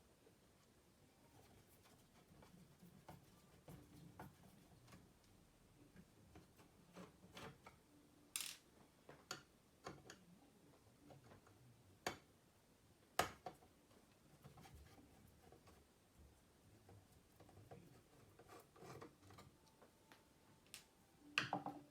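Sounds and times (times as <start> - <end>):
faint clicks and taps: 9.0 - 12.3.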